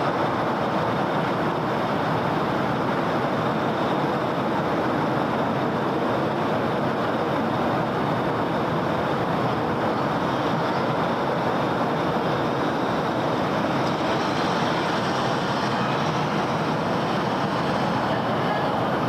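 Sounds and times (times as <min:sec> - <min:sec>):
dense city road traffic: 0:00.0 - 0:19.0.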